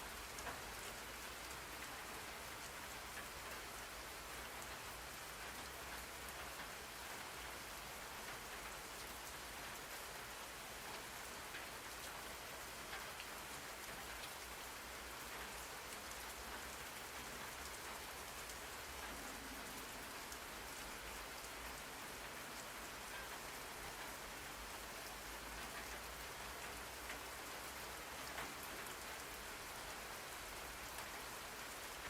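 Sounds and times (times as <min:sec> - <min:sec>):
steady rain hiss: 0:00.0 - 0:32.0
rain drop ticks: 0:00.2 - 0:01.9, 0:08.2 - 0:14.5, 0:15.1 - 0:31.8.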